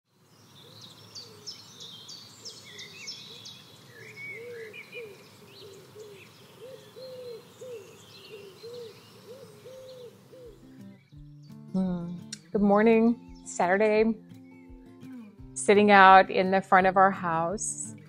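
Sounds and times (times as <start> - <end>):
small birds chirping and trilling: 0.2 - 12.3
low hooting bird call: 0.6 - 10.7.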